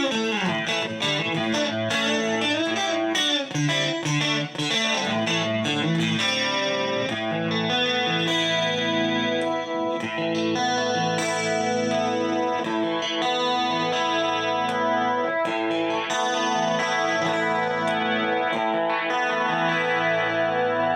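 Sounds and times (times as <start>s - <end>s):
electric guitar chords: 0.0s - 20.9s.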